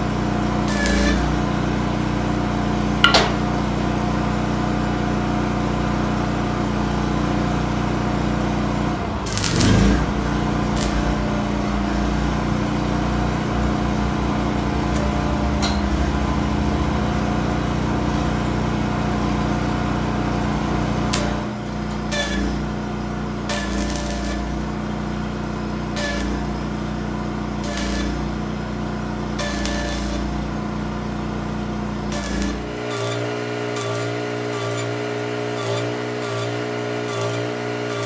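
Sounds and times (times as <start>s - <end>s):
steady mechanical hum: 0.0s - 38.0s
hammer hitting steel: 3.0s - 3.6s.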